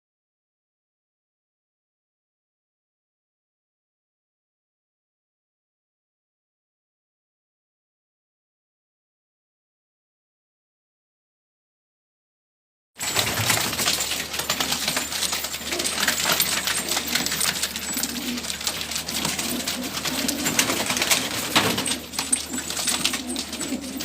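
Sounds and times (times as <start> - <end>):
pigeon wings and feet rustling: 13.0 - 24.0
pigeons cooing: 13.0 - 24.0.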